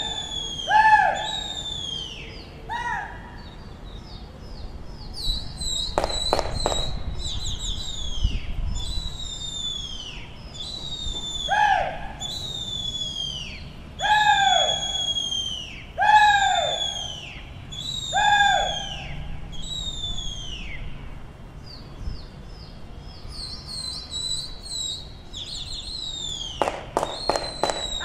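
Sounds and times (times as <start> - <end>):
birds whistling downward calls: 0.0 - 2.8, 3.4 - 21.0, 22.1 - 28.0
sharp cracks: 6.0 - 7.0, 26.5 - 28.0.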